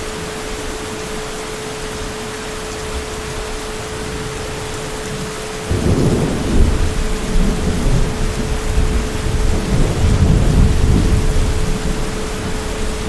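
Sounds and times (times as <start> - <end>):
heavy rain: 0.0 - 13.0
deep thunder rumble: 4.0 - 13.0.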